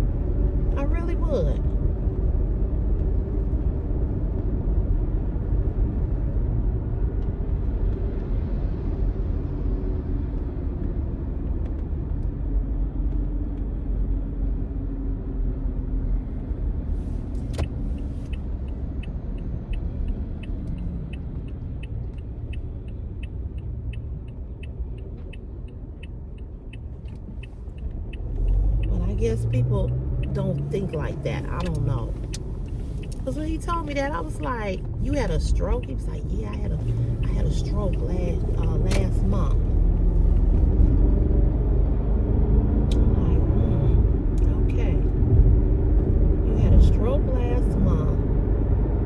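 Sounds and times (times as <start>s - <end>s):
car cabin rumble: 0.0s - 3.7s, 25.2s - 41.2s, 42.8s - 48.3s.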